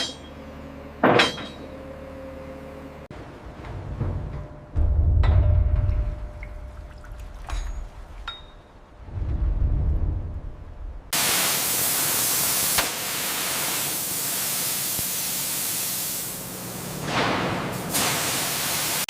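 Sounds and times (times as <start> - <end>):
low rumble: 3.7 - 11.2
loud steady hiss: 11.2 - 19.0.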